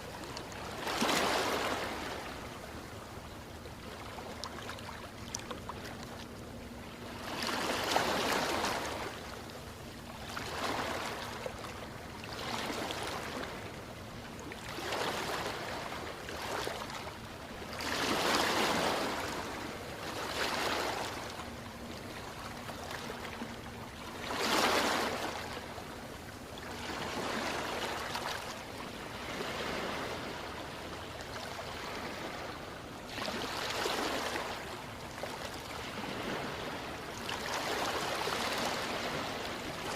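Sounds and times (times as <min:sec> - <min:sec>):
ocean waves washing in: 0:26.8 - 0:39.9.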